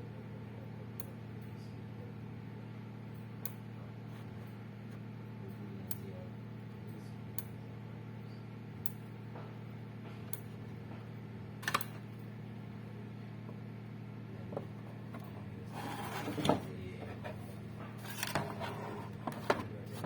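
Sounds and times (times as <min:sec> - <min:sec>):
electric fence clicking: 0:11.6 - 0:12.0
electric fence snap: 0:11.6 - 0:12.0.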